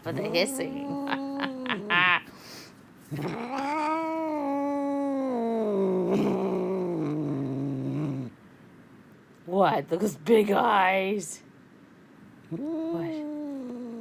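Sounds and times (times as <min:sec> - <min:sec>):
cat yowling growl: 0:00.0 - 0:02.3, 0:03.1 - 0:08.4, 0:12.5 - 0:14.0.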